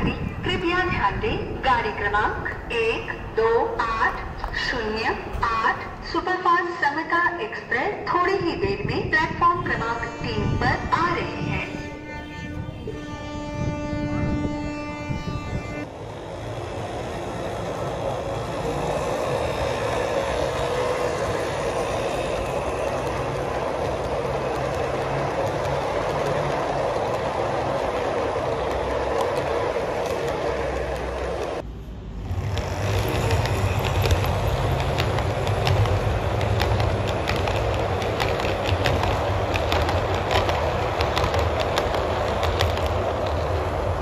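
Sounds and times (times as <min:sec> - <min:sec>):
train running on track: 0:00.0 - 0:44.0
wheels clicking over rail joints: 0:16.1 - 0:44.0.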